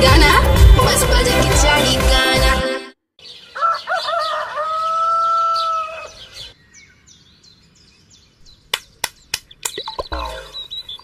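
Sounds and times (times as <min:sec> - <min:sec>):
long drawn-out bird call: 0:03.2 - 0:06.6
short high bird chirps: 0:08.4 - 0:11.0.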